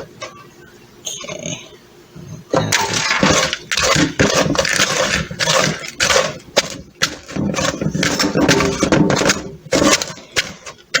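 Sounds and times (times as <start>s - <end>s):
sugar lumps scraped in a cup: 3.0s - 11.0s.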